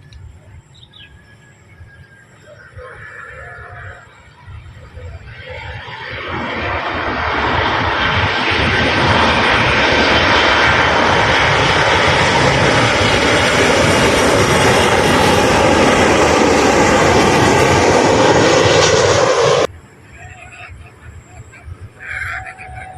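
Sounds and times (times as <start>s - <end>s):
airliner engines passing: 0.0s - 22.9s.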